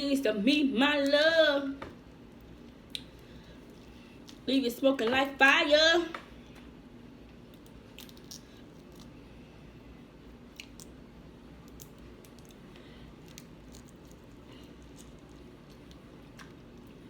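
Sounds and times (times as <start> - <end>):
person chewing seafood: 10.3 - 17.0
faint clicks and crunches: 11.6 - 17.0.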